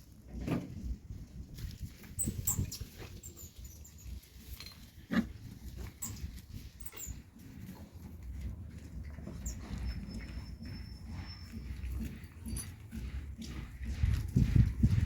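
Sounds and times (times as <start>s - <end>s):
pig squeaks: 2.2s - 4.2s, 5.1s - 7.3s, 9.2s - 13.0s
pigs grunting: 8.9s - 14.4s.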